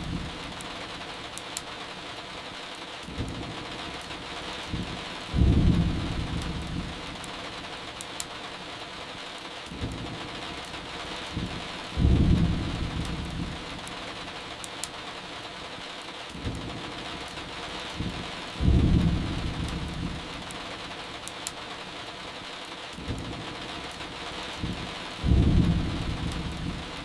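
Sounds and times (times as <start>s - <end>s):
steady rain: 0.0s - 27.0s
wood fire crackling: 0.0s - 27.0s
low rolls of thunder: 4.7s - 7.0s, 11.3s - 13.7s, 18.0s - 20.4s, 24.6s - 27.0s.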